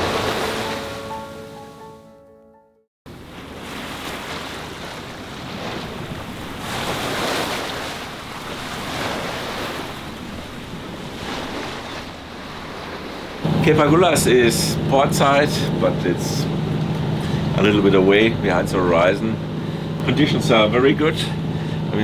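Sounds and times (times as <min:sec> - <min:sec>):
sea waves washing: 0:00.0 - 0:02.2, 0:03.1 - 0:22.0
wind buffeting microphone: 0:04.6 - 0:22.0.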